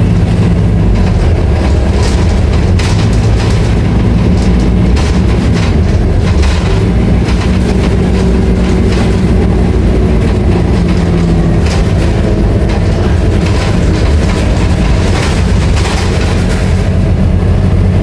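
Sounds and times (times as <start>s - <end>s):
bus body rattling clicks: 0.0s - 18.0s
bus diesel engine drone: 0.0s - 18.0s.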